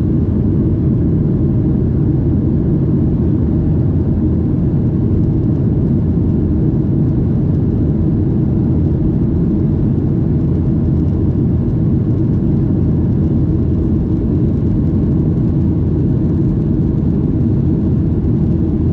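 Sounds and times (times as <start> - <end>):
aircraft engine rumble on board: 0.0 - 18.9.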